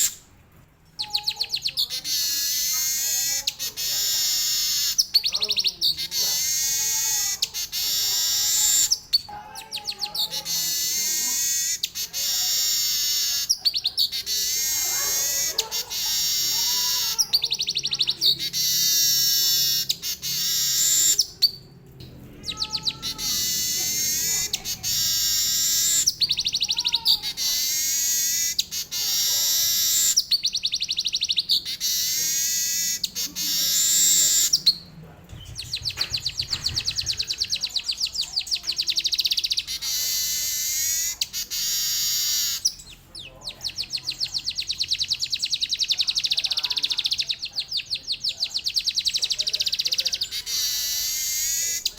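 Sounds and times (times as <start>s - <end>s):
weaver bird trilling song: 1.0s - 21.6s, 22.4s - 51.9s.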